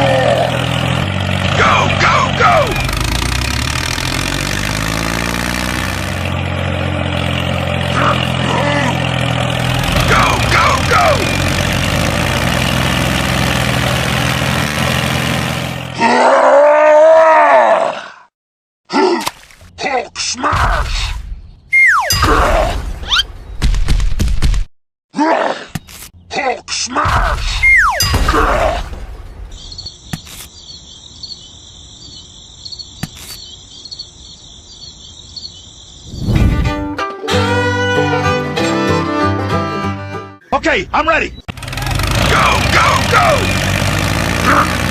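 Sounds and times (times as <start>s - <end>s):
engine-like rumble: 0.0s - 15.9s, 41.4s - 44.9s
crickets chirping: 29.5s - 36.4s.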